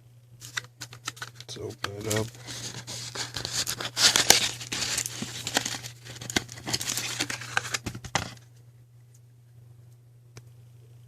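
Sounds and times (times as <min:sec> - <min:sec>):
packaging crinkling and tearing: 0:00.4 - 0:08.4.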